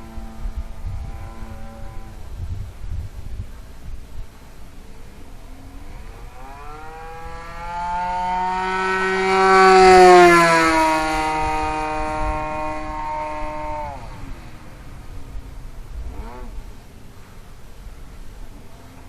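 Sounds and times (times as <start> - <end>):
model plane engine at high throttle: 4.8 - 17.6.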